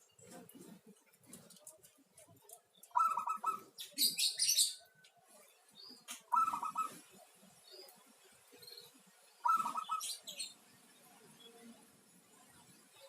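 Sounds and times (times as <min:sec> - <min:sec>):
small bird chirping: 0:02.5 - 0:05.0, 0:05.6 - 0:10.6
dove cooing: 0:02.9 - 0:04.6, 0:06.3 - 0:07.0, 0:09.4 - 0:10.2.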